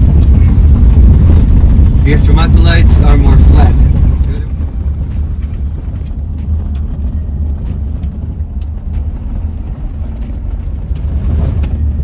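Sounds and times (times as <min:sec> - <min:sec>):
vehicle rumble from inside cabin: 0:00.0 - 0:12.0.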